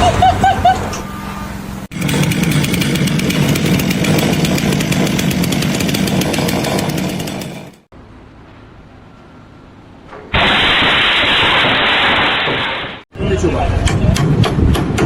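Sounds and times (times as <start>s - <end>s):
chainsaw engine running: 1.9s - 7.9s.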